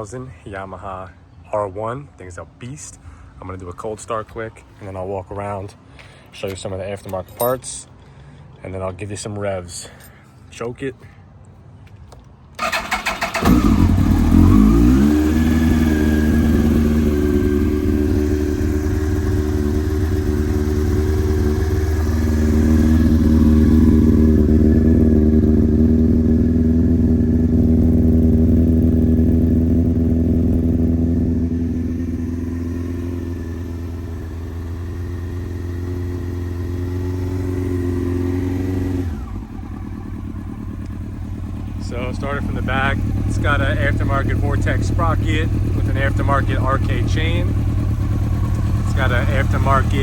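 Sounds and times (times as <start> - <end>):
electric starter cranking: 12.6 - 15.7
motorcycle engine idling: 12.6 - 50.0.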